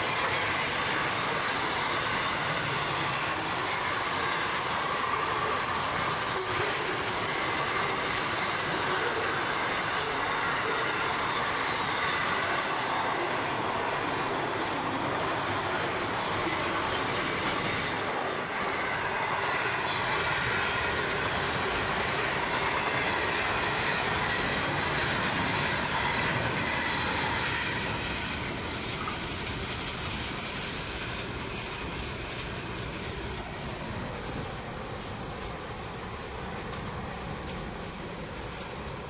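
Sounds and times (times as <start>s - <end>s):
freight train wagons rolling on rails: 0.0s - 39.0s.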